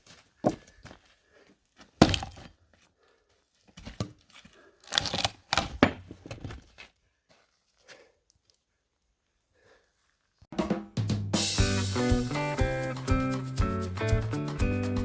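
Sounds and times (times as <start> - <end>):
axe striking log: 2.0 - 2.5, 4.9 - 6.3
wood cracking and splitting: 2.0 - 2.5, 4.8 - 6.6.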